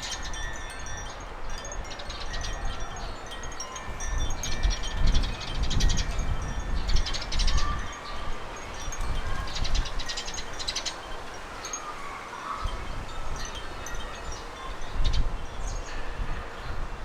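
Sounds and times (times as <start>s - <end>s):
birds chattering: 0.0s - 16.8s
wind buffeting microphone: 0.0s - 17.0s.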